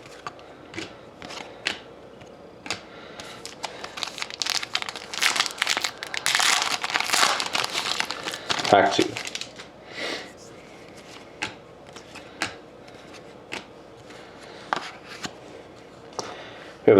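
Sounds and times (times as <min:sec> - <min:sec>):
cards clicking and rustling: 0:00.0 - 0:09.7, 0:11.0 - 0:15.4
wrapper tearing and crinkling: 0:03.3 - 0:09.7.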